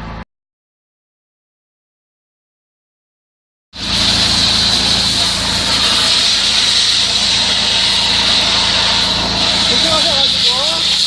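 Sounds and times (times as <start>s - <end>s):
engine and pump hum: 3.8s - 11.0s
high-pressure water hissing: 3.8s - 11.0s.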